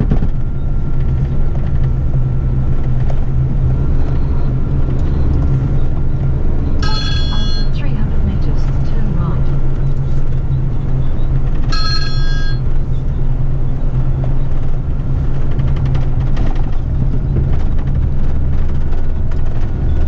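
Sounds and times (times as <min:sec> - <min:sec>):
truck diesel engine running: 0:00.0 - 0:20.0
short electronic beep: 0:06.8 - 0:07.8, 0:11.7 - 0:12.7.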